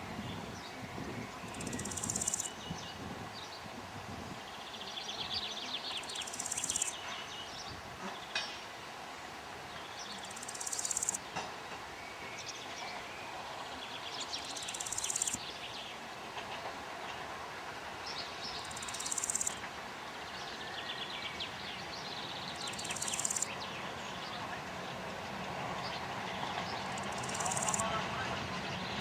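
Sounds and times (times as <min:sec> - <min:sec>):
birds singing: 0:00.0 - 0:03.7, 0:04.4 - 0:08.6, 0:09.7 - 0:11.4, 0:12.0 - 0:16.0, 0:18.1 - 0:19.6, 0:20.2 - 0:24.5, 0:25.8 - 0:27.9
insect buzzing: 0:01.5 - 0:02.5, 0:06.0 - 0:06.9, 0:10.2 - 0:11.2, 0:14.5 - 0:15.4, 0:18.6 - 0:19.6, 0:22.7 - 0:23.5, 0:27.0 - 0:27.8.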